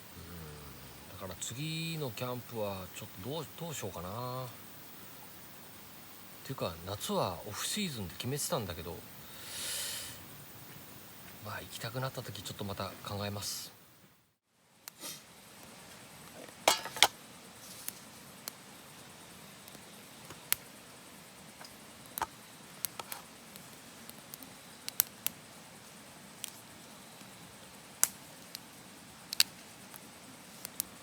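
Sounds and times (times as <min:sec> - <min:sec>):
faint steady hiss: 0:00.0 - 0:31.0
wood fire crackling in stove: 0:14.8 - 0:31.0.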